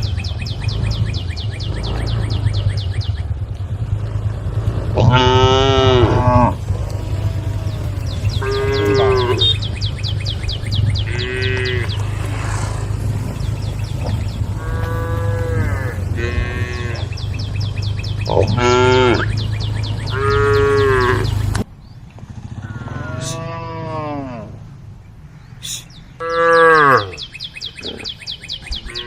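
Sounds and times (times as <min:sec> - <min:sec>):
cows mooing: 0:04.0 - 0:21.6, 0:22.6 - 0:24.7, 0:25.6 - 0:28.2, 0:28.8 - 0:29.0.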